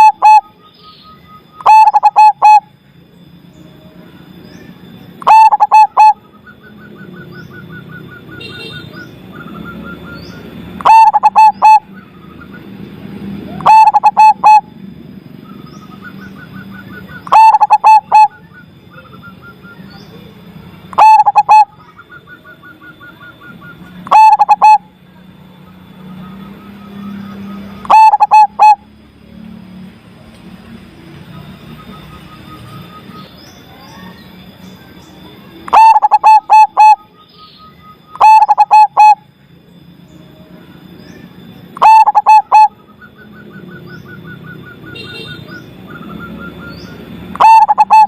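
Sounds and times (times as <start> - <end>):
dove cooing song: 0.0 - 0.6, 1.3 - 2.7, 5.2 - 8.6, 9.3 - 14.8, 15.6 - 19.9, 20.9 - 24.9, 26.6 - 29.0, 35.6 - 37.2, 37.9 - 39.3, 41.6 - 48.0
faint rapid bird chirping: 0.0 - 29.1, 30.6 - 48.0.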